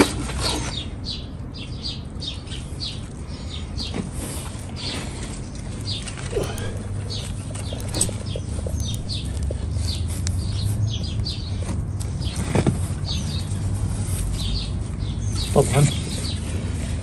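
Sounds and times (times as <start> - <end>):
small birds chirping: 0.0 - 17.0
steady low hum: 1.2 - 12.3.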